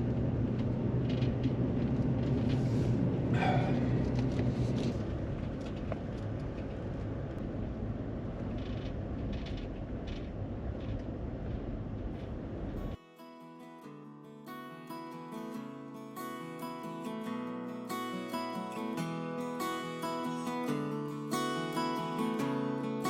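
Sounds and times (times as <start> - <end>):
pickup engine and road hum: 0.0 - 13.0.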